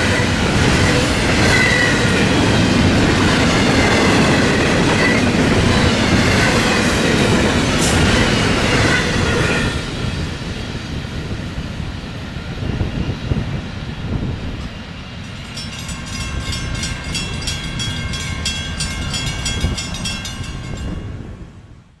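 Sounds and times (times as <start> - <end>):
freight train rumble: 0.0 - 22.0
crossing bells ringing rapidly: 15.2 - 21.4.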